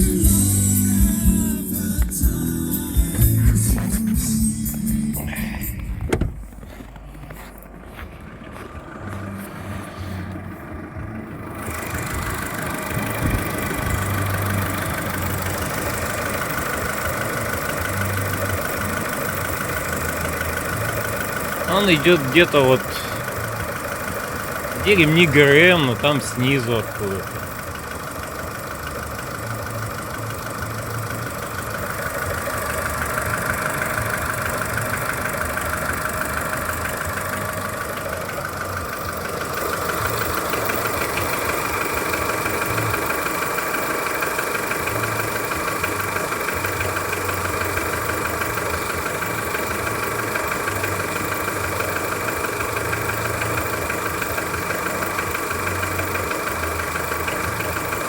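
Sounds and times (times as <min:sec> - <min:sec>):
car engine idling with knock: 0:00.0 - 0:58.0.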